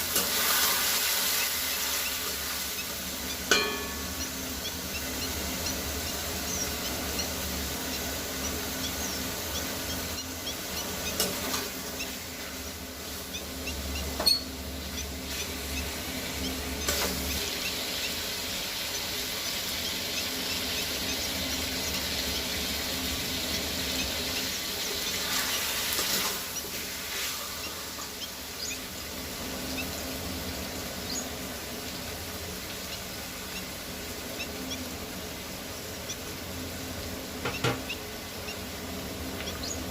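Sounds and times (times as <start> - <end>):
food sizzling in oil: 0.0 - 13.6, 14.2 - 39.9
utensil knocking against pan: 3.5 - 4.3.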